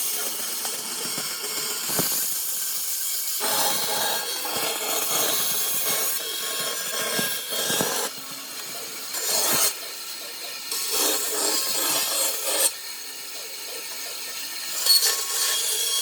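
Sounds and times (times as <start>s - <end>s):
tool scraping wood: 1.1s - 2.8s, 3.4s - 12.8s.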